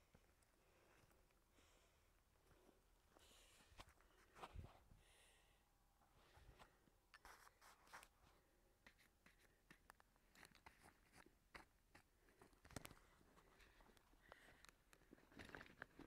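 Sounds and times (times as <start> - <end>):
faint clicks and crackles: 8.8 - 16.0.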